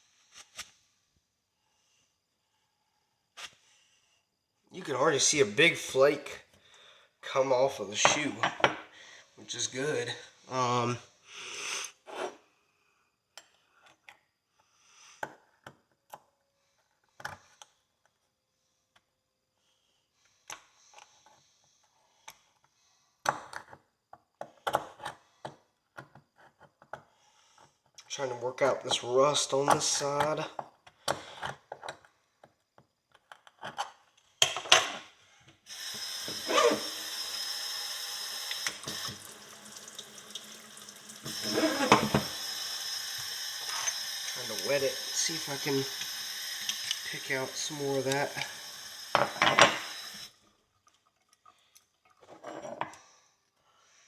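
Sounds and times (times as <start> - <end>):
water tap running: 35.7 - 50.4
hand tool scraping metal: 36.0 - 37.0, 41.3 - 42.4, 43.6 - 45.9.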